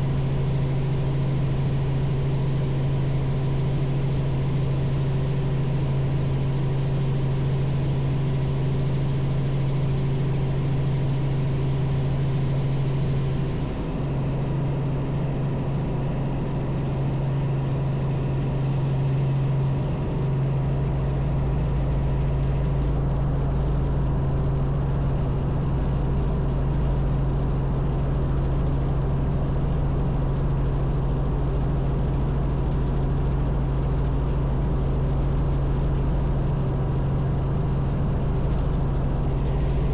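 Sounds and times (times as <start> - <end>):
helicopter engine and rotors droning: 0.0 - 39.9
deeper rumble: 36.7 - 39.9.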